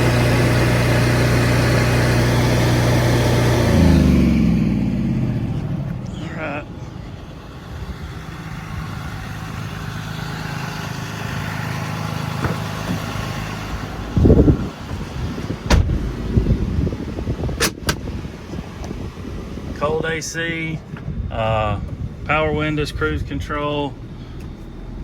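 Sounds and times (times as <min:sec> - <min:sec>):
engine humming: 0:00.0 - 0:25.0
loud thump: 0:12.4 - 0:13.1, 0:15.6 - 0:16.5.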